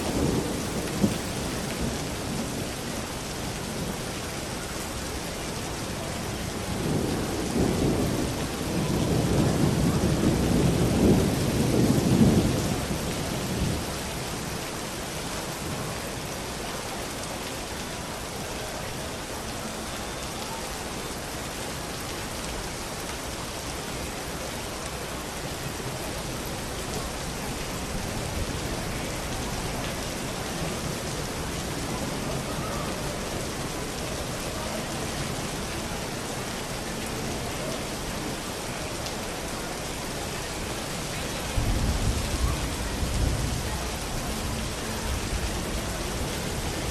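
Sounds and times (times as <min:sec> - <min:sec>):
thunder rumbling: 0:00.0 - 0:02.8
heavy rain: 0:00.0 - 0:46.9.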